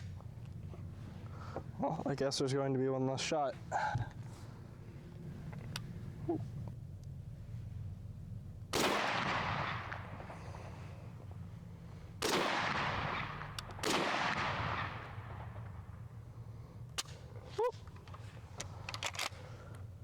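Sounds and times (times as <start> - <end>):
rifle shots echoing: 8.7 - 11.5, 12.2 - 17.4.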